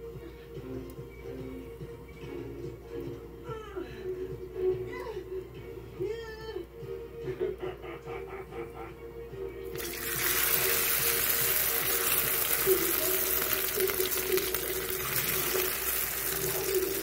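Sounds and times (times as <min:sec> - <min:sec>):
omelette sizzling in a pan: 0:09.7 - 0:17.0.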